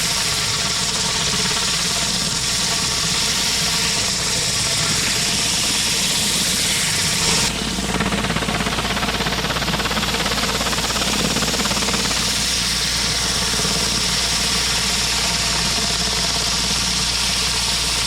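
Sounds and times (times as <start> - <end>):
water spray hissing on concrete: 0.0 - 7.5
pressure washer engine hum: 0.0 - 18.0
pump pulsing: 0.0 - 18.0.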